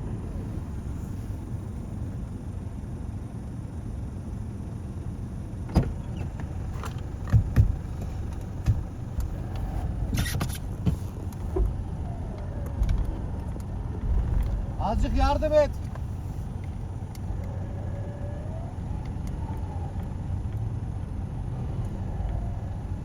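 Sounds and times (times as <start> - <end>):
pickup truck engine low rumble: 0.0 - 23.0
sharp knocks and clunks: 5.7 - 9.4.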